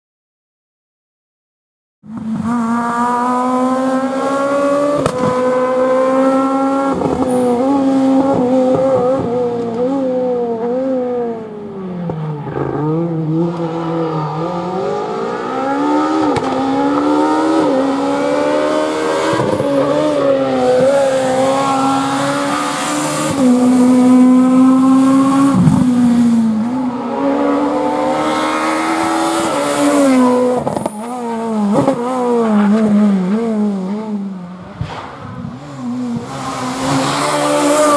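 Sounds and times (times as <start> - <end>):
rally car engine revving: 2.1 - 37.9
sharp cracks at gear shifts: 5.0 - 6.1, 34.7 - 37.9.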